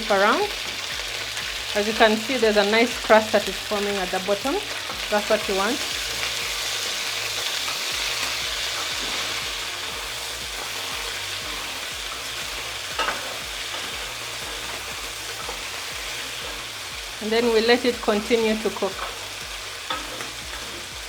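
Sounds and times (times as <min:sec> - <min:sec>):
meat sizzling in oil: 0:00.0 - 0:21.0
scrape in pan: 0:05.8 - 0:16.9, 0:18.9 - 0:21.0.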